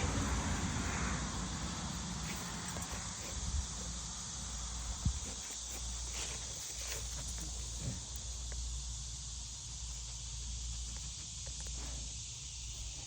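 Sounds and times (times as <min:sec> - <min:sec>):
steady hiss and low rumble: 0:00.0 - 0:13.0.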